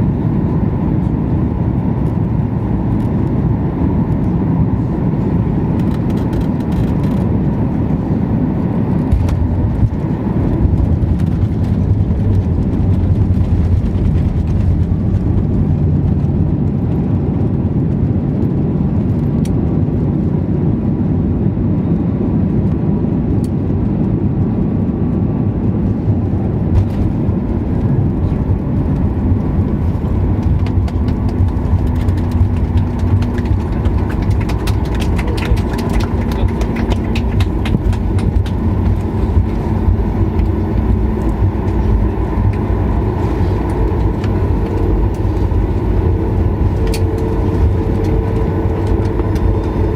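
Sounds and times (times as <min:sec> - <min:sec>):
airliner cabin rumble: 0:00.0 - 0:49.9.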